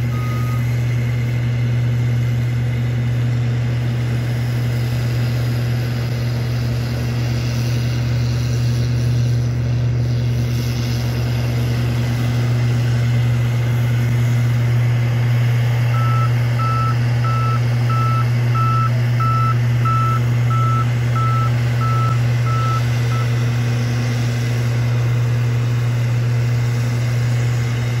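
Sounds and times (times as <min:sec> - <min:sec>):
diesel engine running: 0:00.0 - 0:28.0
reverse alarm beeping: 0:00.1 - 0:00.6, 0:15.9 - 0:23.4.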